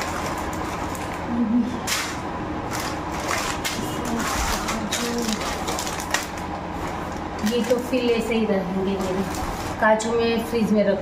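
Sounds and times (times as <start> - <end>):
plastic bag rustling and crinkling: 2.7 - 10.0.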